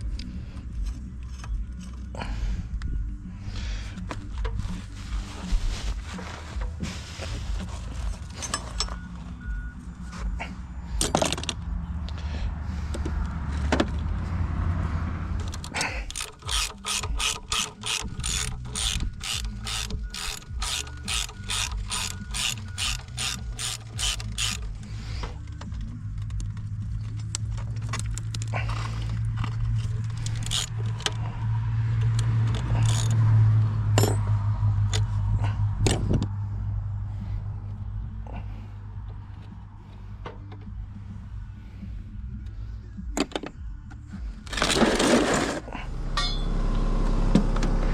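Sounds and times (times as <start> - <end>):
low steady hum: 0.0 - 47.9
ratchet wrench clicking: 15.4 - 26.6, 27.2 - 33.4
metal knocks: 46.2 - 46.6.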